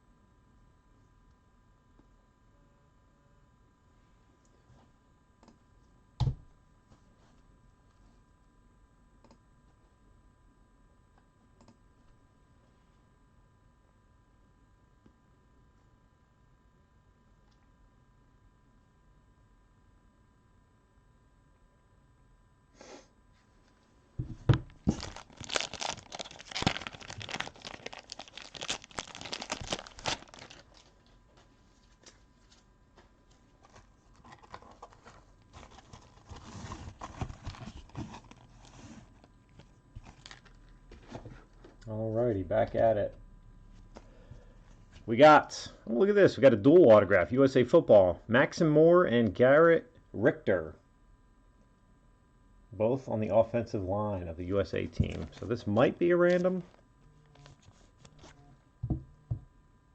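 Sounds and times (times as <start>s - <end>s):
plastic wrapping tearing and crinkling: 24.7s - 32.6s, 33.3s - 41.4s.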